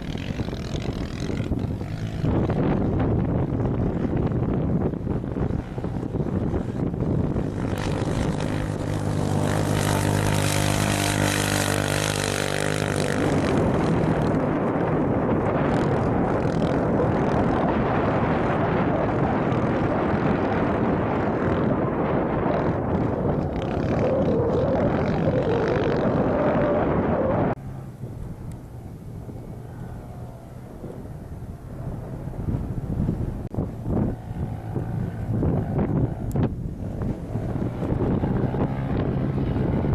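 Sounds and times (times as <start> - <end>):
engine running: 0.0 - 39.9
wind buffeting microphone: 0.0 - 39.9.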